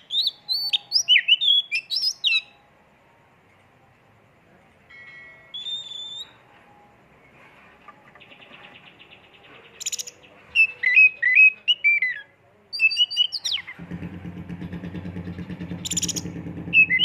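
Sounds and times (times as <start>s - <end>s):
bird singing whistled notes and trills: 0.0s - 2.9s, 5.4s - 7.4s, 8.0s - 13.8s, 15.6s - 17.0s.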